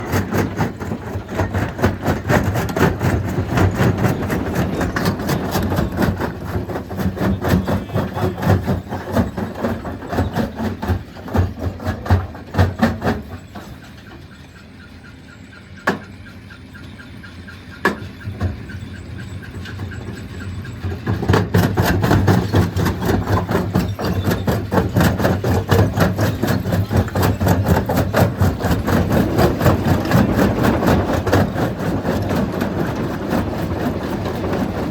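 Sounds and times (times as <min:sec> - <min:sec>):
stone crusher clattering: 0:00.0 - 0:14.2, 0:17.8 - 0:34.9
sharp knocks: 0:15.8 - 0:16.1.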